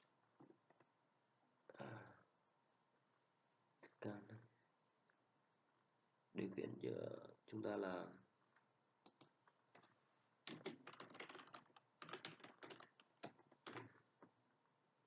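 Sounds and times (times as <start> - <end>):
typing on computer keyboard: 10.5 - 14.0.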